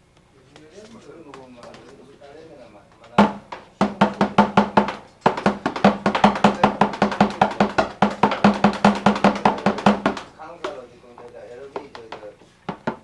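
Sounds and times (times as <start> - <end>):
drum fast strokes: 3.2 - 10.6.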